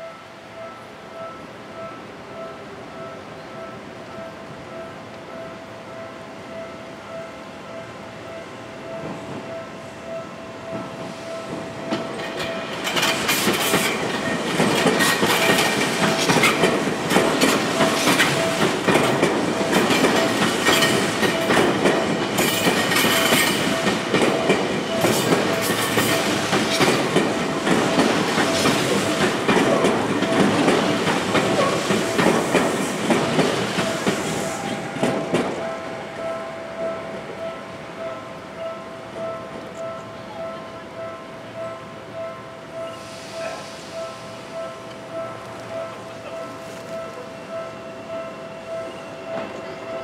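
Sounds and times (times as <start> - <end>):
level crossing warning bell: 0.0 - 50.0
train wheels clattering over rail joints: 11.9 - 34.3.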